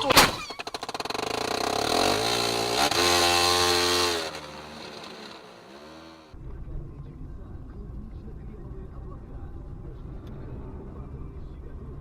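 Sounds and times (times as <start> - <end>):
vehicle engine revving: 0.8 - 6.4.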